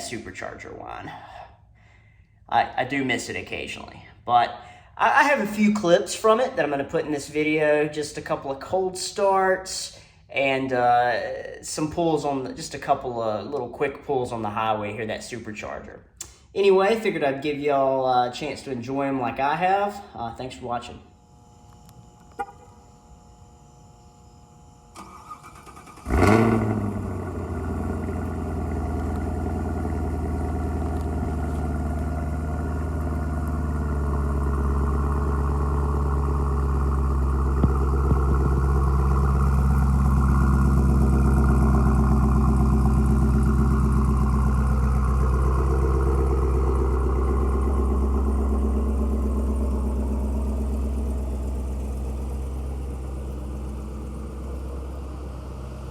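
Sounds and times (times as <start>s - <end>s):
car engine starting and idling: 21.1s - 55.9s.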